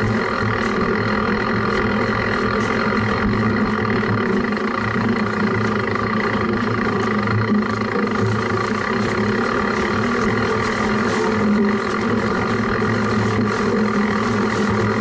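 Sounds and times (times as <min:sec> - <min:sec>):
bike tyre rumbling: 0:00.0 - 0:15.0.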